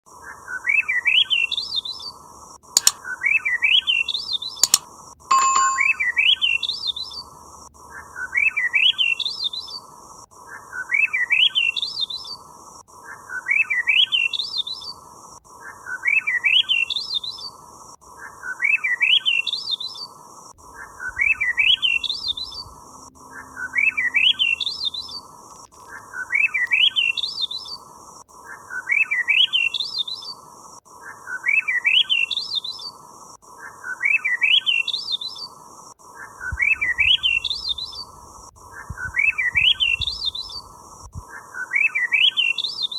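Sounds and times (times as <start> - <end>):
sharp clicks: 2.8 - 3.0, 4.6 - 6.1
bird chirping: 18.6 - 28.0, 36.2 - 40.8.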